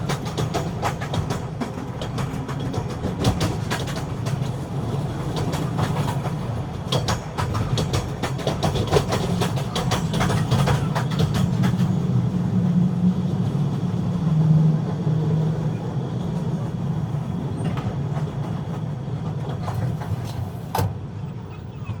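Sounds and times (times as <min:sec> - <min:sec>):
train wheels clicking over rail joints: 0:00.0 - 0:12.5, 0:14.9 - 0:21.2
train rumbling: 0:00.0 - 0:22.0.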